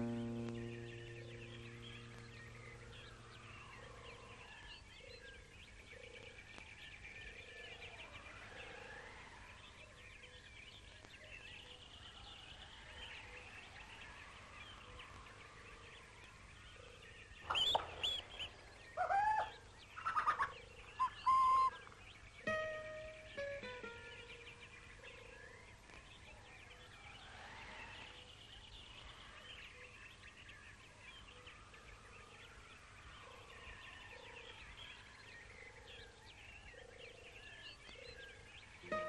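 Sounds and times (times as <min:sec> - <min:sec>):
loud pitch-bending bird calls: 0:00.0 - 0:04.9, 0:17.4 - 0:24.2
faint birdsong: 0:00.0 - 0:39.0.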